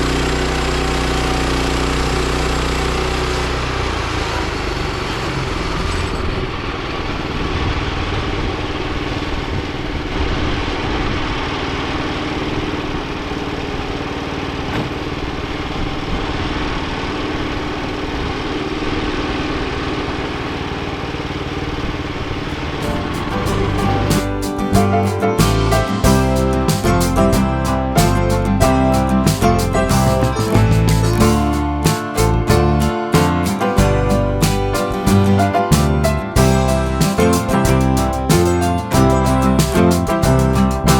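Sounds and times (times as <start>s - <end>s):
sawmill engine running: 0.0s - 7.5s, 22.4s - 40.9s.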